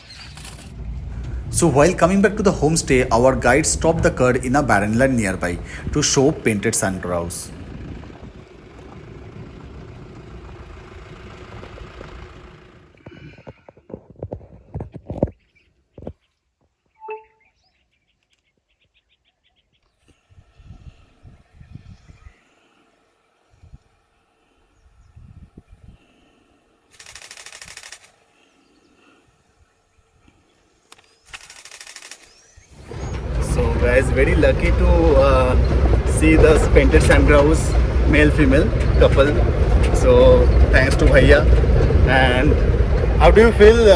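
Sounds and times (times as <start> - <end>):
car engine and road rumble: 0.0 - 15.4, 25.2 - 43.9
camera shutter rapid clicking: 26.9 - 28.3, 30.9 - 32.5.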